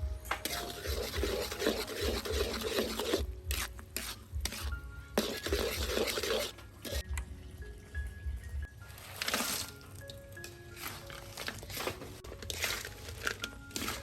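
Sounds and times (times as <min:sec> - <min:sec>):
soft background music: 0:00.0 - 0:14.0
utensil scraping food in pan: 0:00.4 - 0:07.0, 0:10.8 - 0:14.0.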